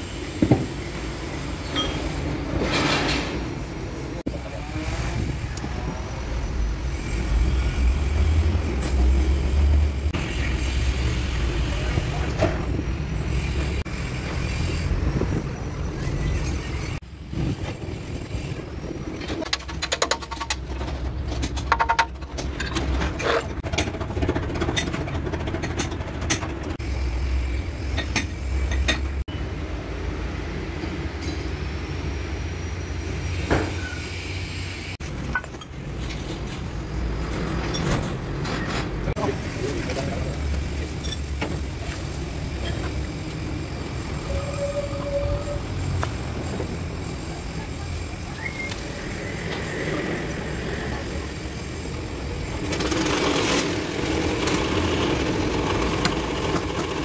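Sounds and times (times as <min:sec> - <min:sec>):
clinks and knocks: 0:19.2 - 0:26.8.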